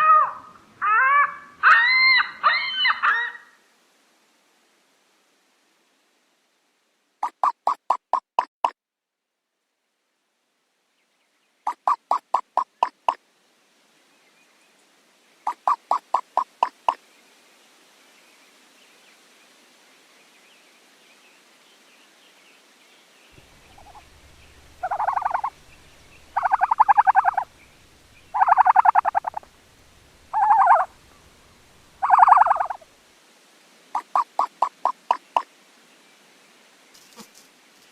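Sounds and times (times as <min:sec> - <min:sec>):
ostrich calls: 0:23.4 - 0:32.8
faint low rumble: 0:23.4 - 0:33.0.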